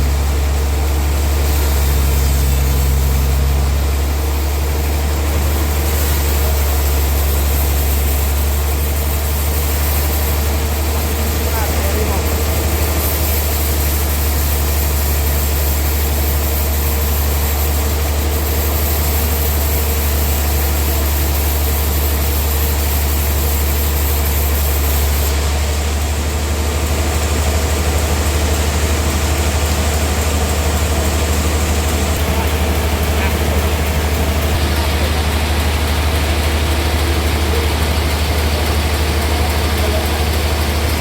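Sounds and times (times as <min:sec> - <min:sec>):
sawmill engine low hum: 0:00.0 - 0:41.0.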